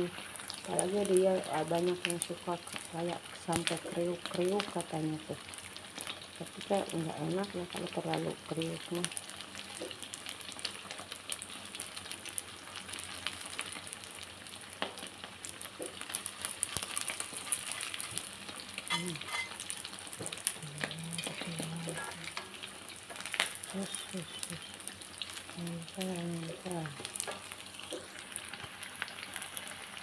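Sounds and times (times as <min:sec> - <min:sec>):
rice cake sizzling in oil: 0:00.0 - 0:30.0
metal spatula scraping pan: 0:18.9 - 0:19.6.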